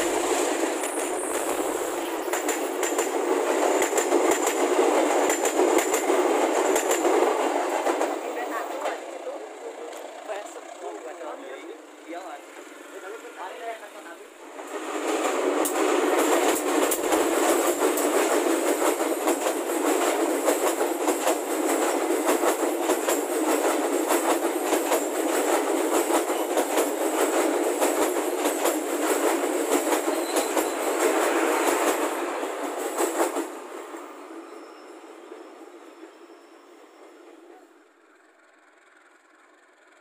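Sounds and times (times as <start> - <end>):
wheels clicking over rail joints: 0.0 - 8.1
passenger train passing: 0.0 - 40.0.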